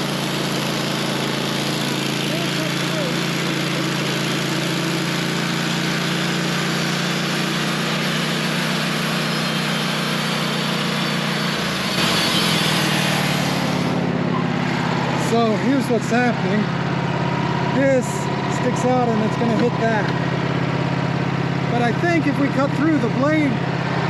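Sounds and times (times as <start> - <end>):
band blade cutting log: 0.0 - 15.6
sawmill engine humming: 0.0 - 24.0.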